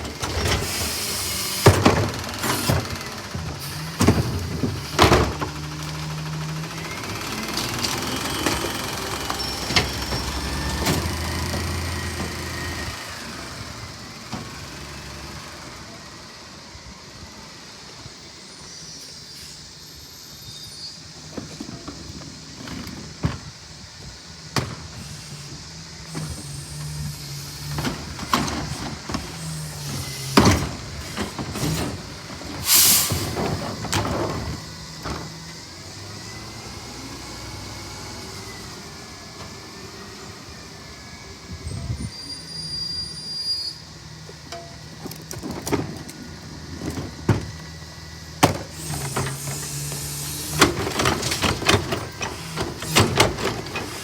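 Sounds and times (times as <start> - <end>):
garbage truck engine revving: 0.0 - 16.2, 24.4 - 42.1, 43.8 - 54.0
air hissing: 24.2 - 35.0, 48.2 - 54.0.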